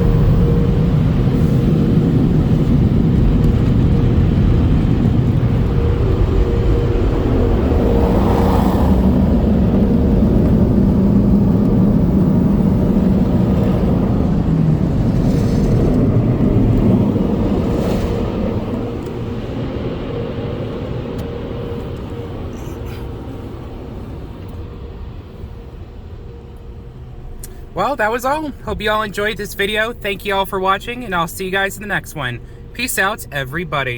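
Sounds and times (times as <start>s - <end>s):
dryer blowers rushing: 0.0s - 24.3s
faint hum: 21.6s - 33.9s.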